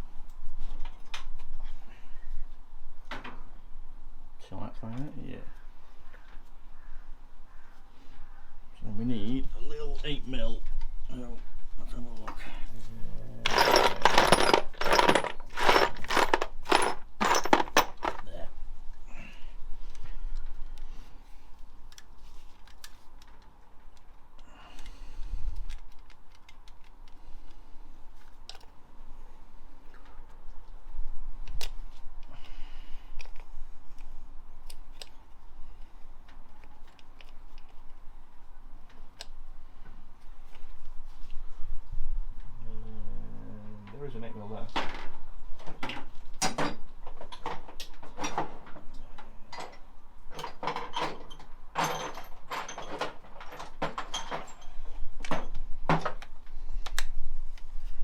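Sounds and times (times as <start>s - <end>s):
metal tools clinking and rattling: 13.4s - 18.4s, 49.5s - 55.6s
metal hand tools clinking: 13.5s - 18.3s.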